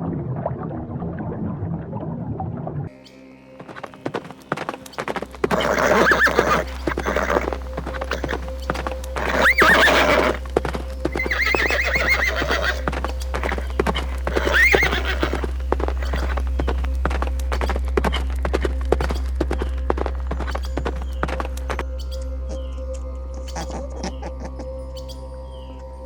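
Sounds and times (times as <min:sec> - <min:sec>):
hooves clip-clopping: 0:03.6 - 0:24.6
horse neighing: 0:04.1 - 0:21.5.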